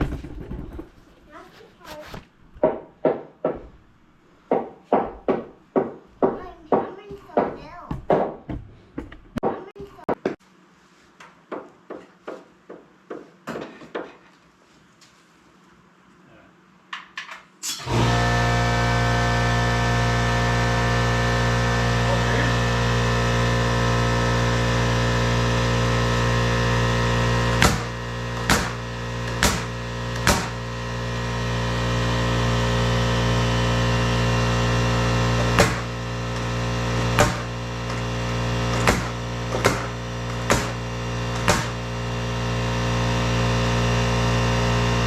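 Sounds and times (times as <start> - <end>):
sharp knocks: 2.6 - 3.8, 4.5 - 10.4, 27.6 - 30.6, 35.5 - 35.9, 37.2 - 37.5, 38.7 - 40.8, 41.4 - 41.8
engine running steadily: 17.8 - 45.0.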